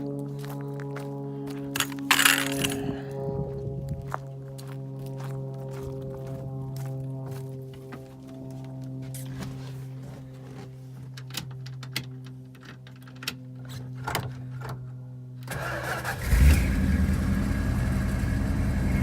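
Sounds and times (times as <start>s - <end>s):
engine starting and running: 15.4s - 19.0s.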